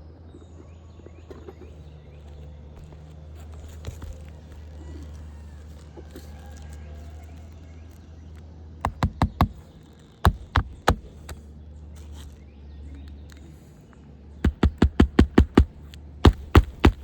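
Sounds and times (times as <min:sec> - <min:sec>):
hammer striking nails: 0:08.9 - 0:09.7, 0:10.3 - 0:11.4, 0:14.4 - 0:17.0.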